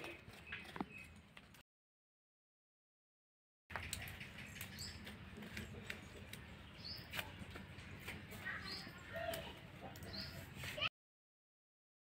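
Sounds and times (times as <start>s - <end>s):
bird chirping: 0.0s - 1.2s, 3.7s - 10.5s.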